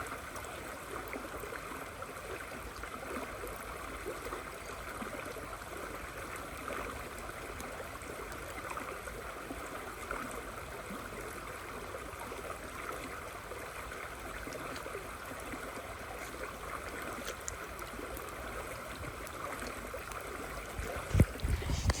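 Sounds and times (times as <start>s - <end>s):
river water rushing: 14.2s - 22.0s.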